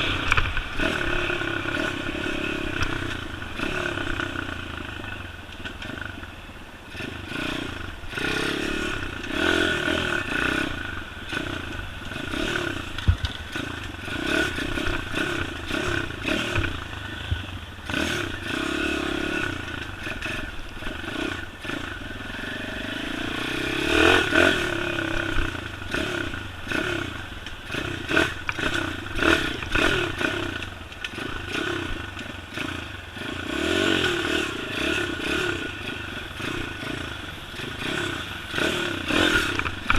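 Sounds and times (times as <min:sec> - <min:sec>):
motorbike engine revving: 0:00.0 - 0:06.2, 0:06.8 - 0:39.9
bike knocking and clattering: 0:12.4 - 0:14.4.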